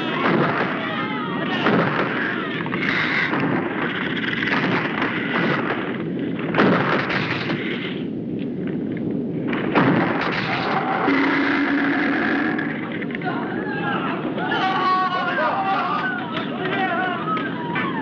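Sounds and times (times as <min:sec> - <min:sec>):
heavy booms: 0:00.0 - 0:14.4
explosions and rumbling: 0:00.0 - 0:18.0.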